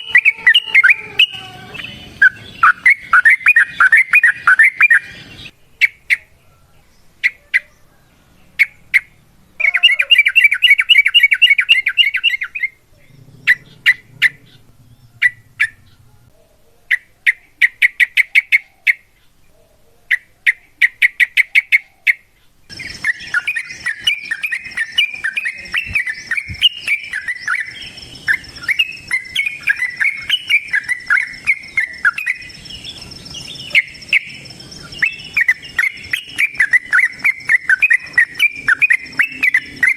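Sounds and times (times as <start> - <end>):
faint steady high tone: 0.0 - 5.6
bird calling and chattering: 0.0 - 6.4, 8.6 - 16.3, 20.1 - 39.9.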